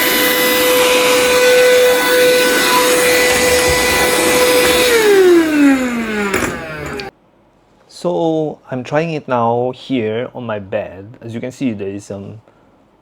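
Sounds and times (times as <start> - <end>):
handheld vacuum cleaner whine: 0.0 - 7.1.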